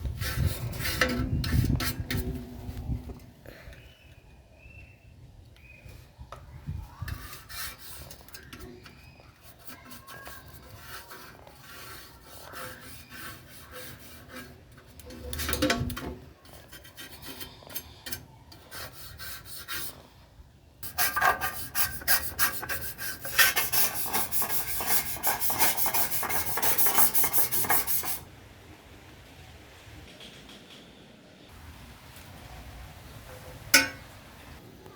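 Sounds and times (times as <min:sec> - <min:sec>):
hand scrubbing strokes on surface: 0:07.1 - 0:15.6, 0:16.4 - 0:20.2, 0:20.8 - 0:28.3.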